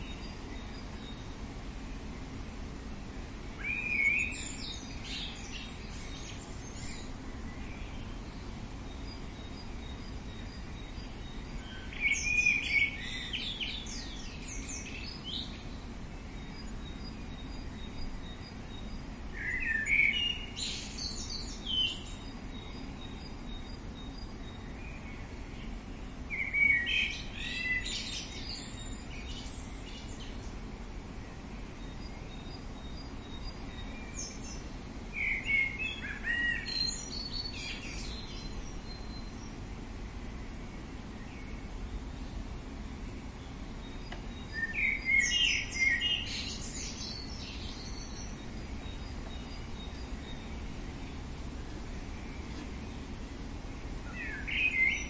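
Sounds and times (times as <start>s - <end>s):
outdoor background hiss: 0.0s - 55.0s
songbird singing: 0.0s - 55.0s.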